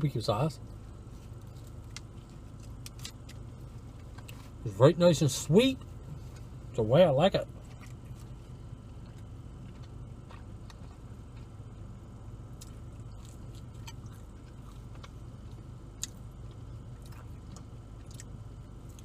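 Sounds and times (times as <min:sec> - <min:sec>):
steady low hum: 0:00.0 - 0:19.0
person chewing: 0:07.5 - 0:11.9, 0:12.5 - 0:19.0.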